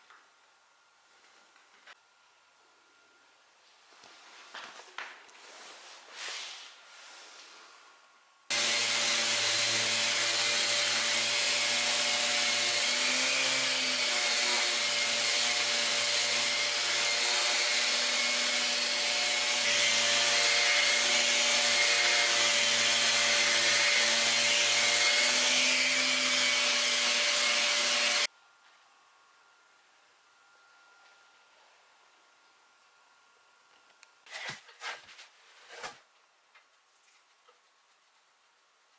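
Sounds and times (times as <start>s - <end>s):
power tool hiss and motor hum: 8.5s - 28.3s.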